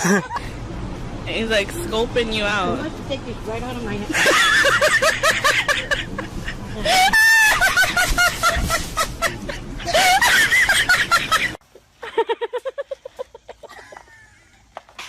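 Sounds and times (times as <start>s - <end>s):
high-pitched laughter: 4.2s - 14.7s.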